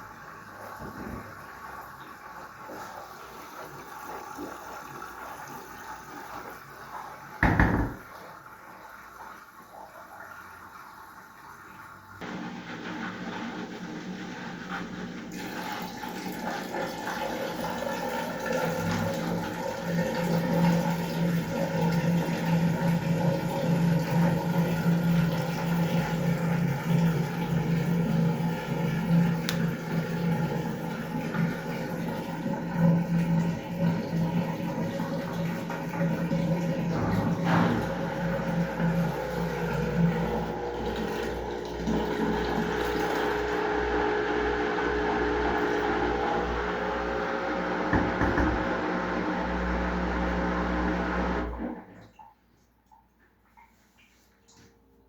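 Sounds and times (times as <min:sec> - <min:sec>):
washing machine running: 0:00.0 - 0:52.2
loud thump: 0:07.4 - 0:08.0, 0:47.9 - 0:48.7.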